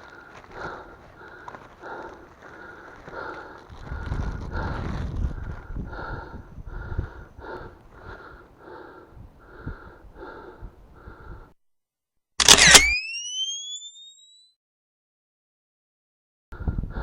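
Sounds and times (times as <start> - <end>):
man panting hard: 0.0 - 11.6.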